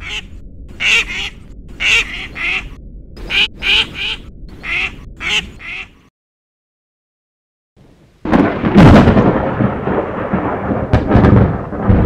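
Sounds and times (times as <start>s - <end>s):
cartoon bird duck-like calls: 0.0s - 6.1s.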